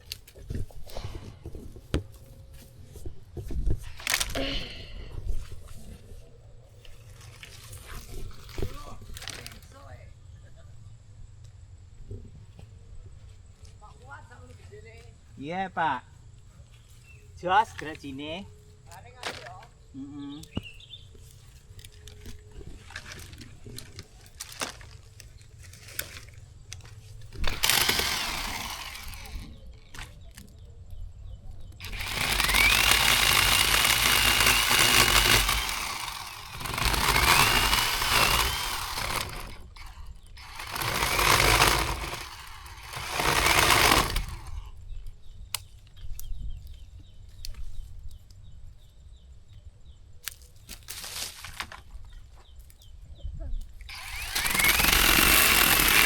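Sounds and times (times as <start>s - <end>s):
electric chainsaw cutting wood: 27.3s - 30.1s, 31.8s - 44.8s, 53.9s - 56.0s.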